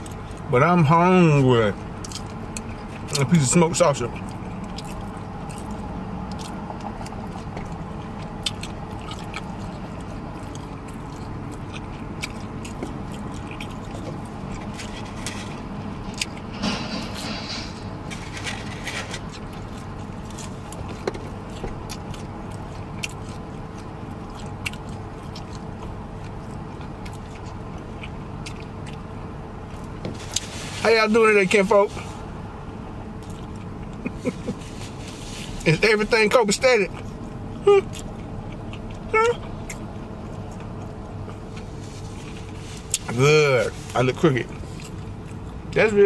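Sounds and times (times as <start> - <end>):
steady low hum: 0.0 - 46.0
chewing with wet mouth clicks: 2.0 - 3.4, 4.0 - 15.0, 19.3 - 30.5, 33.2 - 34.5, 36.9 - 43.1.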